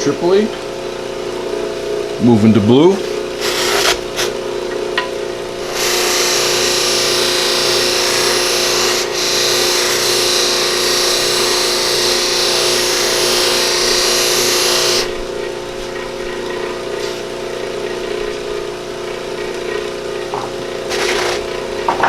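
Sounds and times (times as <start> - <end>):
antler against buffing wheel hissing: 3.0 - 4.4, 5.6 - 15.9
buffing wheel motor humming: 3.0 - 22.0.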